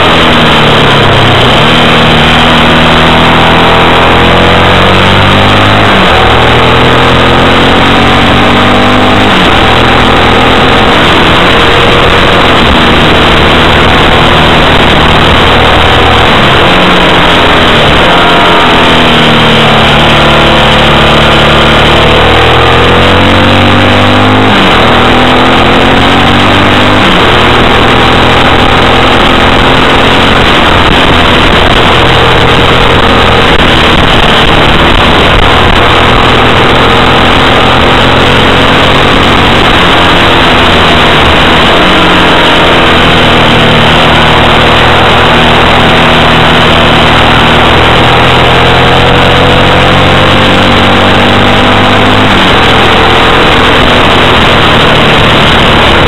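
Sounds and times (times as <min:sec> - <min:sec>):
motorcycle engine revving: 0:00.0 - 0:56.0
road and air noise: 0:00.0 - 0:56.0.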